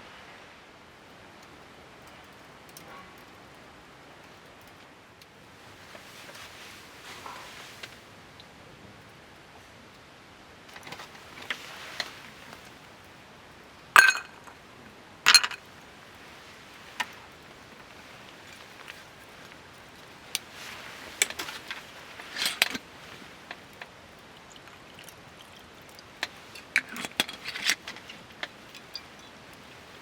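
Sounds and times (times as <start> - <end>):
tableware clinking: 14.0 - 14.6, 15.3 - 15.6.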